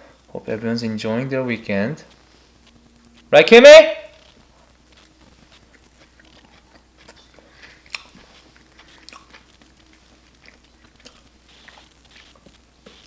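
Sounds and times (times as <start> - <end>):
chewing and biting food: 4.3 - 13.0.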